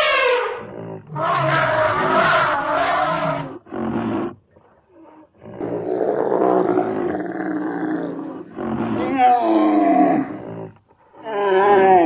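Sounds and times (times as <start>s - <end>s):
creature roaring: 5.6s - 10.5s.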